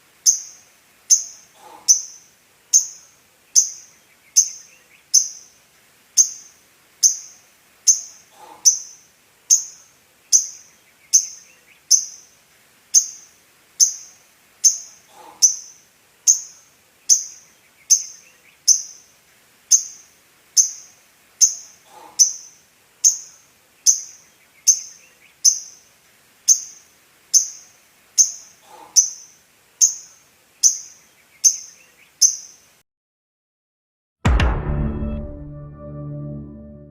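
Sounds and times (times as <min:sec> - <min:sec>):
lovebird high-pitched chirp: 0:00.2 - 0:03.0, 0:03.6 - 0:05.5, 0:06.2 - 0:12.3, 0:13.0 - 0:19.1, 0:19.7 - 0:25.8, 0:26.5 - 0:32.6.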